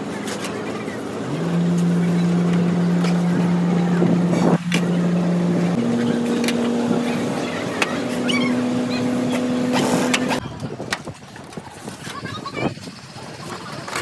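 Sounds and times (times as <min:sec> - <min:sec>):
motor running: 0:01.2 - 0:10.4.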